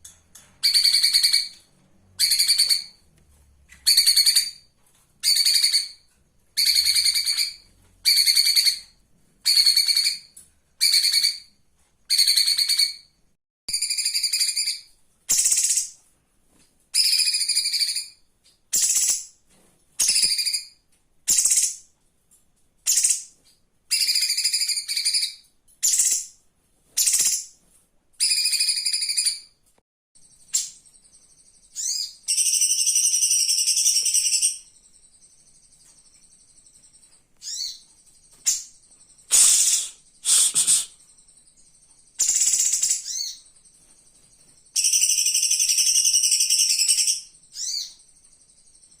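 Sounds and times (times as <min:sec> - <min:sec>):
bird singing chattering phrases: 0:39.2 - 0:41.1.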